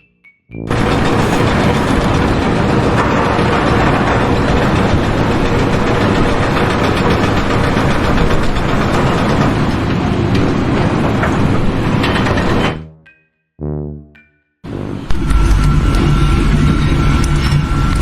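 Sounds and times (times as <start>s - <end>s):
clicks and rattles: 0.7s - 12.8s
heavy machinery running: 0.7s - 12.8s, 14.7s - 18.0s.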